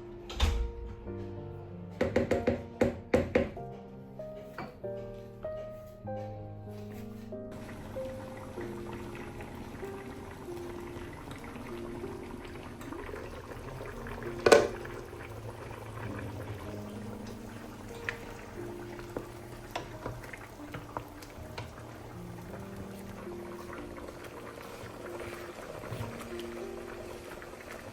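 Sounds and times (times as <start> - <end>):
soft background music: 0.0 - 27.9
liquid bubbling in a pot: 7.5 - 27.9.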